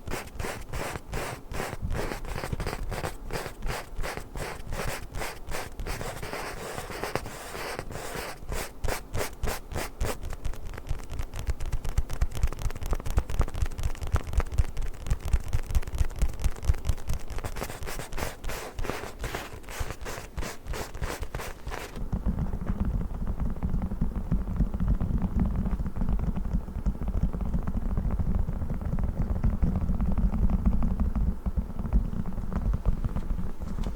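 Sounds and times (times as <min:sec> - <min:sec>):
scratching and rubbing on book: 0:00.0 - 0:22.0.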